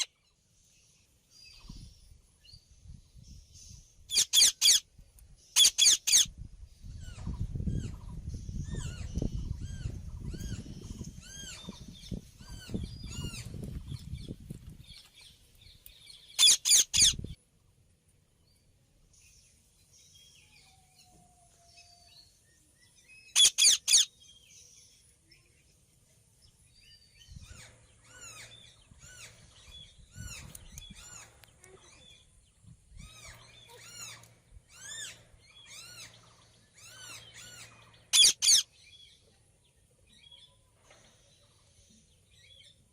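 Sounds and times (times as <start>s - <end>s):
harsh parakeet screeches: 4.1s - 4.8s, 5.6s - 6.3s, 16.4s - 17.2s, 23.4s - 24.1s, 38.1s - 38.6s
parakeets chirping: 4.1s - 4.8s, 5.6s - 6.3s, 16.2s - 17.4s, 23.3s - 24.1s, 36.8s - 38.7s.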